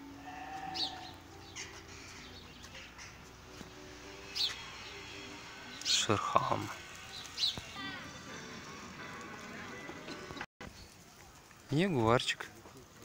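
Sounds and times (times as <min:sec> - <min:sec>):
high falling bird calls: 0:00.1 - 0:08.0.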